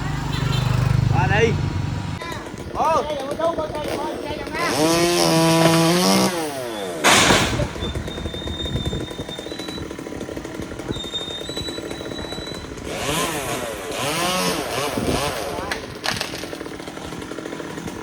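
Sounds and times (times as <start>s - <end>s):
chainsaw revving and idling: 0.0s - 18.0s.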